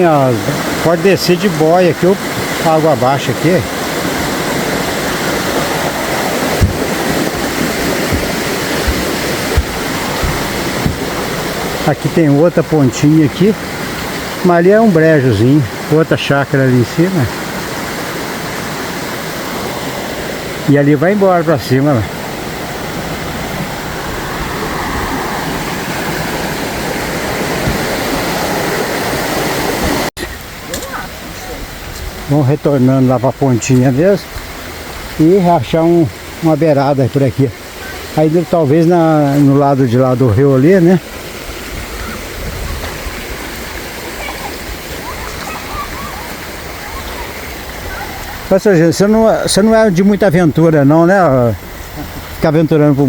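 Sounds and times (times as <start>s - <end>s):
river rushing over rocks: 0.0s - 53.0s
low bumps: 3.6s - 12.9s.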